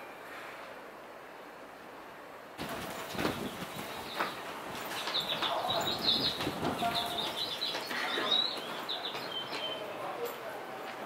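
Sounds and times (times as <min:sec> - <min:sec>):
street noise: 0:00.0 - 0:11.0
small birds chirping: 0:03.0 - 0:10.2.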